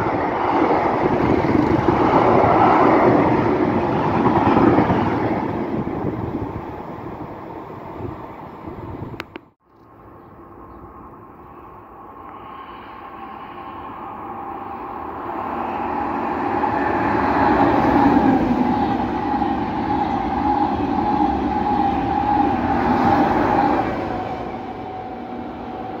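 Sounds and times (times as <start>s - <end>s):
high-speed train rushing past: 0.0s - 9.4s, 10.0s - 26.0s.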